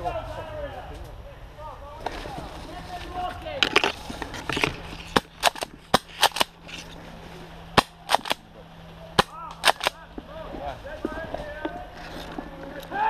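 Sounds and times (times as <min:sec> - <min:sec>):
airsoft gun shots: 0:05.4 - 0:06.5, 0:07.8 - 0:08.4, 0:09.2 - 0:10.0.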